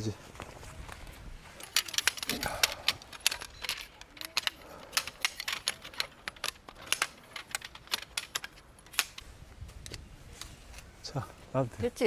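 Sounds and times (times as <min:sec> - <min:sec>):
tent poles clicking and tapping: 0:00.0 - 0:12.0.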